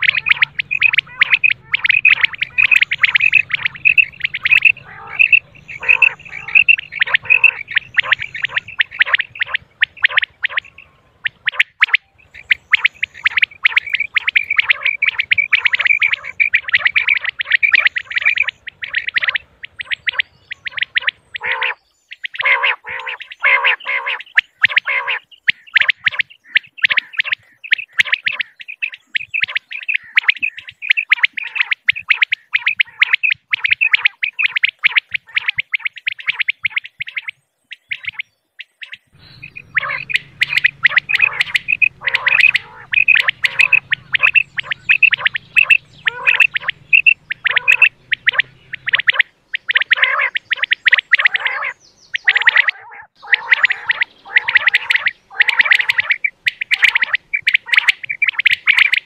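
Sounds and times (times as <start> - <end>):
faint low hum: 0.0 - 21.4, 39.2 - 49.5
quail calling: 0.0 - 59.0.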